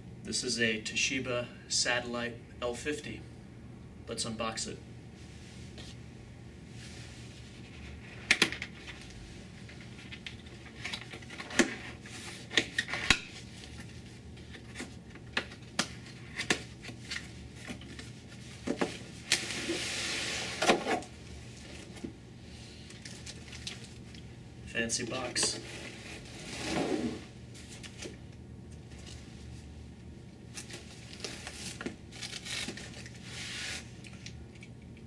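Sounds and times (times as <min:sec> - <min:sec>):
cardboard scraping rasp: 0:25.6 - 0:27.3.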